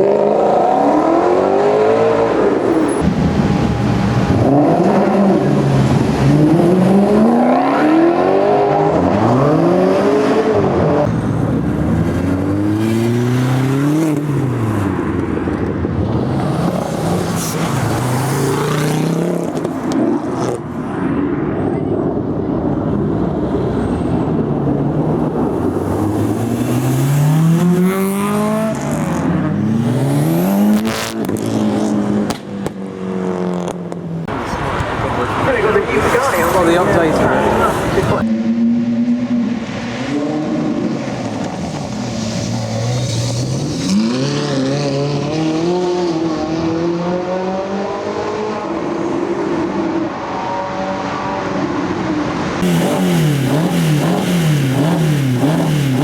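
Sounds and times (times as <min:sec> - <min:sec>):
car engine accelerating hard: 0:00.0 - 0:20.6, 0:23.8 - 0:56.0.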